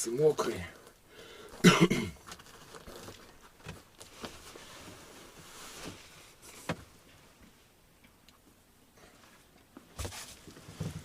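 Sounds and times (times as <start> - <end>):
leather boots rustling and knocking: 9.7 - 11.0.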